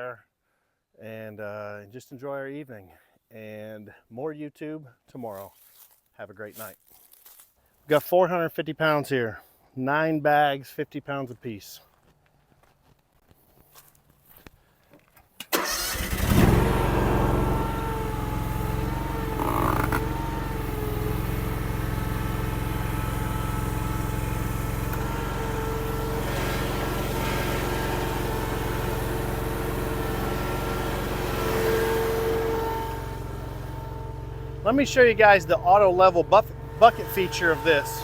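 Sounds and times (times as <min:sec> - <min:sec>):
engine starting and idling: 0:15.4 - 0:38.0.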